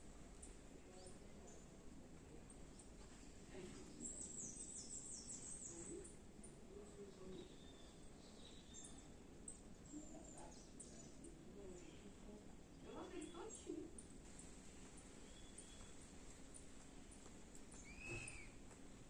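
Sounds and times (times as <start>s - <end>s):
bird chirping: 3.8s - 13.7s, 14.4s - 18.6s.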